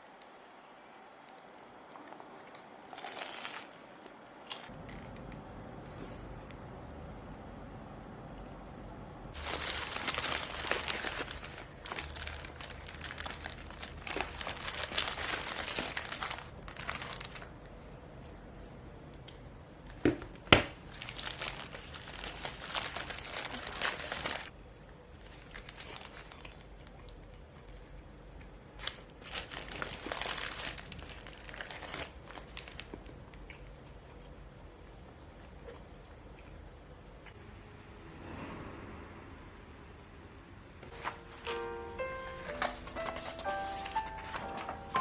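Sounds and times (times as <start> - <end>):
packaging rustling and crumpling: 9.4 - 17.6, 20.8 - 24.6, 25.2 - 26.7, 28.8 - 33.1, 40.9 - 45.0.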